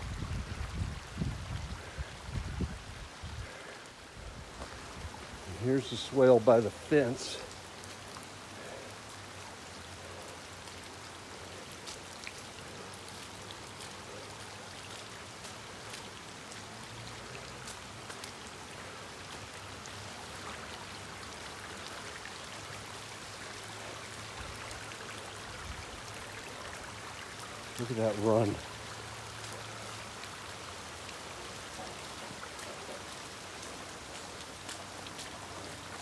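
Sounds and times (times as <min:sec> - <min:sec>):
runoff water flowing: 0:00.0 - 0:36.0
heavy rain falling: 0:00.8 - 0:12.0
raindrop ticks: 0:04.6 - 0:22.0, 0:23.4 - 0:36.0.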